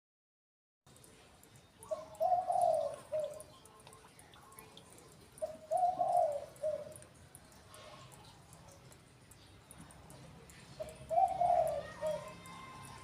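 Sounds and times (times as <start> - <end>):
faint high ticks: 0.9 - 13.0
dove cooing: 1.8 - 3.8, 5.3 - 7.2, 10.7 - 12.8.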